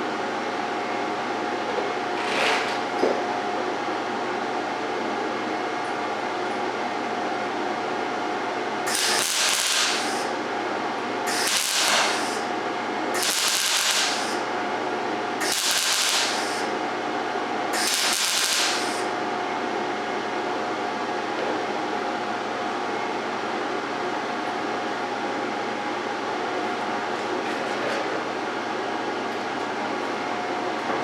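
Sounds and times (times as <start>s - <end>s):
welder cooling fan humming: 5.8s - 21.2s
welder arc crackling: 8.9s - 14.5s, 15.4s - 16.8s, 17.8s - 19.2s.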